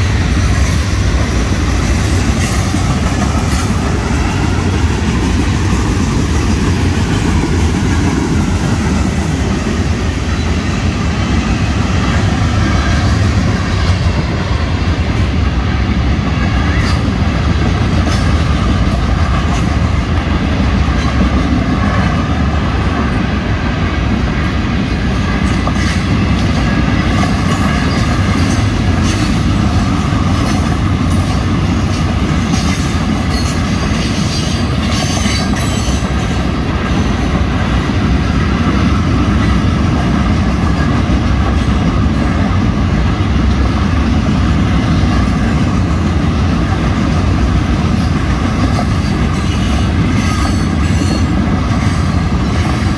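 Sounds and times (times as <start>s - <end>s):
train rumbling past: 0.0s - 52.9s
wheels clacking on rails: 0.0s - 52.9s
train wheel squeal: 16.4s - 17.3s, 25.4s - 38.4s, 47.9s - 52.9s.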